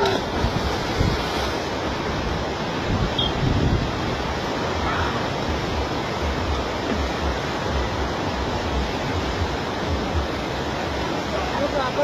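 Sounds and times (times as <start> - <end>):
wind buffeting the microphone: 0.0 - 4.8
river rushing: 0.0 - 12.0.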